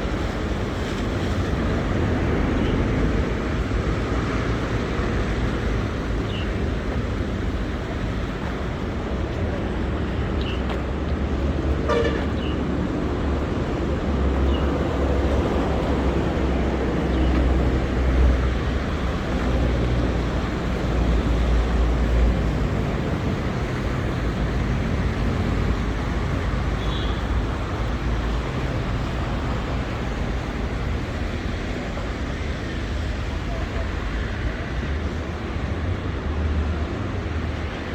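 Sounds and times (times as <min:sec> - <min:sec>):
street traffic rumble: 0:00.0 - 0:37.9
car horn toot: 0:11.9 - 0:12.3.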